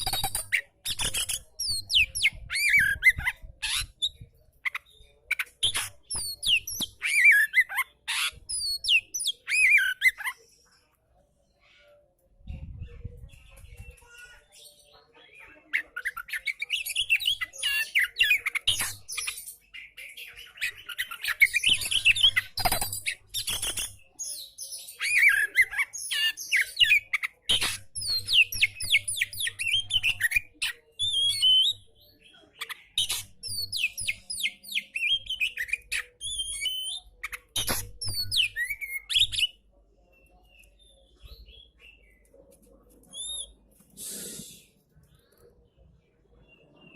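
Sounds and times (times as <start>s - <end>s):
bird singing chirps and whistles: 0.0s - 10.2s, 16.0s - 31.9s, 33.0s - 42.1s.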